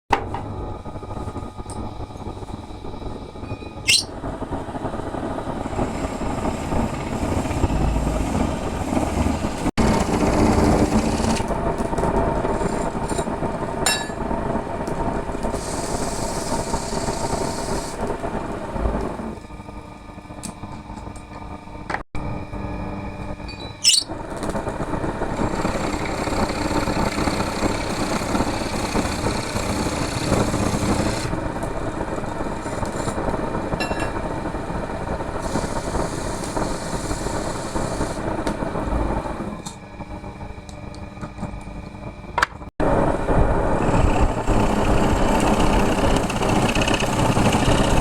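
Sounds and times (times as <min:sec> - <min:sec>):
wood lathe running: 0:04.6 - 0:13.2, 0:15.4 - 0:19.4, 0:25.1 - 0:33.2, 0:35.4 - 0:39.6, 0:43.0 - 0:48.0
tool hissing cutting wood: 0:05.5 - 0:11.4, 0:15.5 - 0:18.0, 0:25.4 - 0:31.4, 0:35.4 - 0:38.2, 0:43.6 - 0:48.0.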